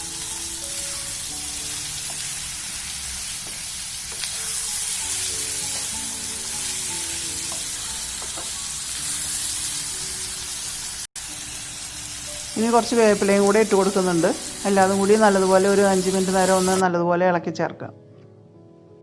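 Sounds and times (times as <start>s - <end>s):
vegetables sizzling in oil: 0.0s - 16.8s
soft background music: 0.0s - 19.0s.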